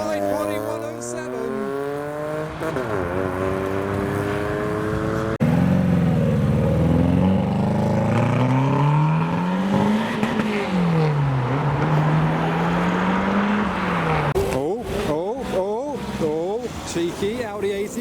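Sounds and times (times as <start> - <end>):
car engine pulling away: 0.0 - 14.6
car engine revving driving off: 0.0 - 17.1.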